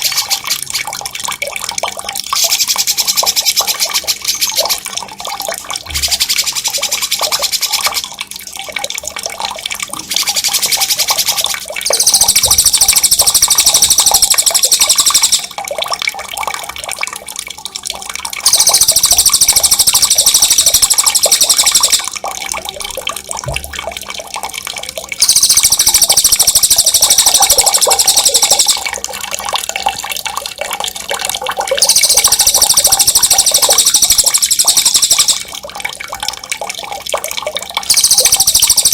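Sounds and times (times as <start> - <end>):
running water trickling: 0.0 - 38.9
songbird rolling trill: 10.5 - 15.5, 18.5 - 22.1, 25.2 - 28.8, 31.8 - 35.5, 37.9 - 38.9.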